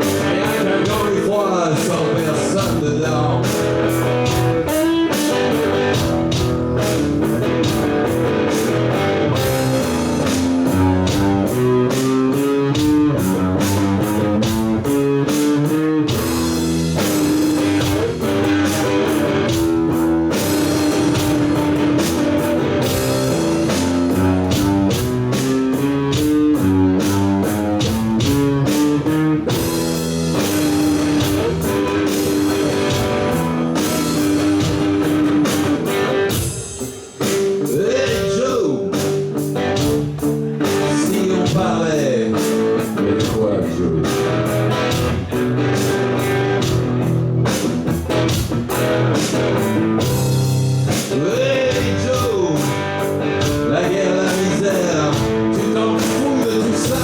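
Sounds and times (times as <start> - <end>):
drum kit: 0.0 - 57.0
electric guitar: 0.0 - 57.0
rock band playing: 0.0 - 57.0.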